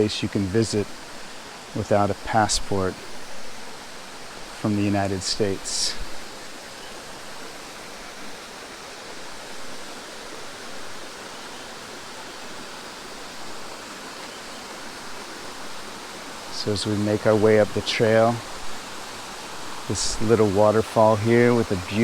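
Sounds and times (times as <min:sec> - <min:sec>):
stream and small waterfall: 0:00.0 - 0:22.0.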